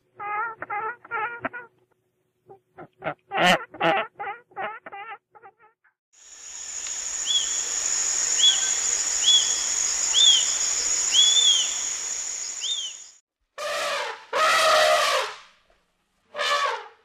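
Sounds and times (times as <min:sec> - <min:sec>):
high-pitched insect drone: 0:06.2 - 0:13.2
light hiss: 0:06.2 - 0:13.2.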